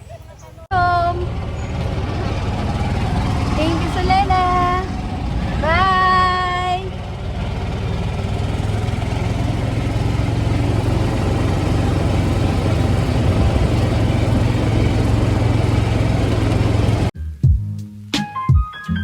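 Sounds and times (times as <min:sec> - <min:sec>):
vehicle engine humming: 0:00.0 - 0:17.1
even rushing noise: 0:01.7 - 0:17.1.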